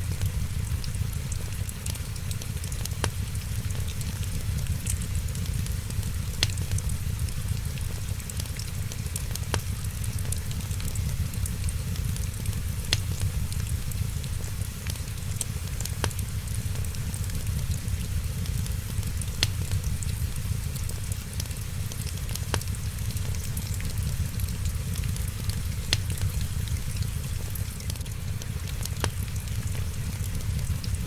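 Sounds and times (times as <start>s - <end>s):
rain hissing: 0.0s - 31.0s
wood fire crackling and popping: 0.0s - 31.0s.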